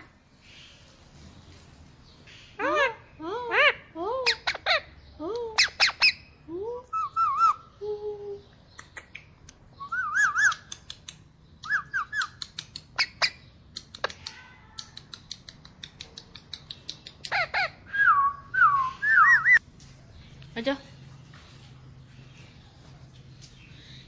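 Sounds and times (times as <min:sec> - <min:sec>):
parrot warbling calls: 0:02.6 - 0:04.9, 0:17.3 - 0:18.2
sharp clicks: 0:10.4 - 0:13.0, 0:13.7 - 0:17.4.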